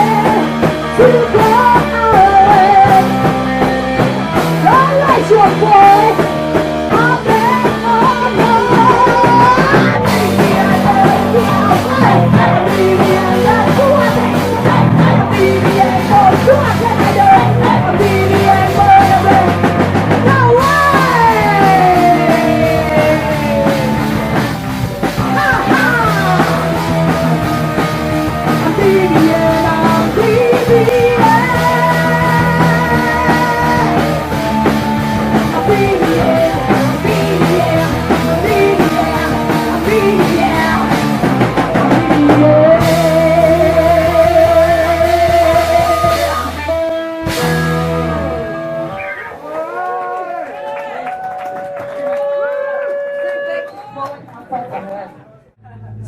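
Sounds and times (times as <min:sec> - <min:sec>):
woman singing and yelling: 0:00.0 - 0:03.3, 0:04.6 - 0:06.3, 0:06.9 - 0:24.5, 0:25.2 - 0:34.6, 0:35.4 - 0:41.2, 0:42.0 - 0:46.6
punk rock band playing: 0:00.0 - 0:49.6.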